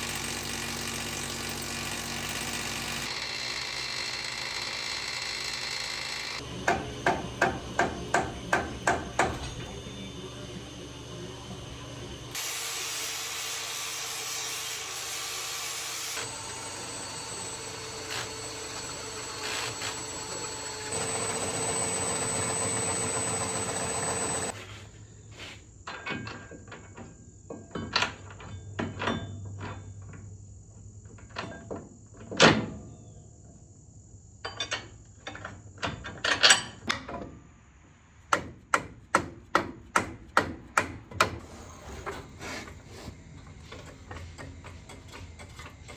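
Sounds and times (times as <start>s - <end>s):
power tool whining: 0.0s - 24.6s.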